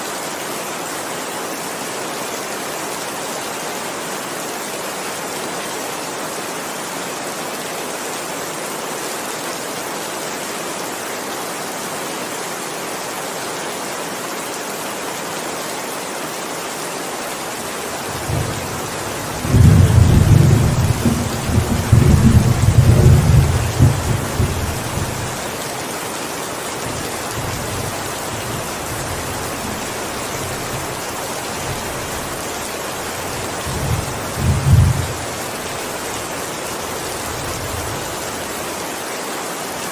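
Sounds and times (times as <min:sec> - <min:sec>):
heavy rain: 0:00.0 - 0:39.9
thunder rumbling: 0:18.1 - 0:25.4, 0:33.2 - 0:35.4.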